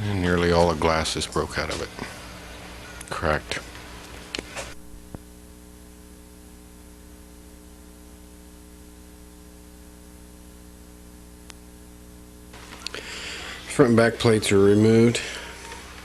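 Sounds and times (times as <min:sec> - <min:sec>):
electrical mains hum: 0:00.0 - 0:16.0
faint click: 0:11.4 - 0:11.6
faint hiss: 0:12.5 - 0:16.0.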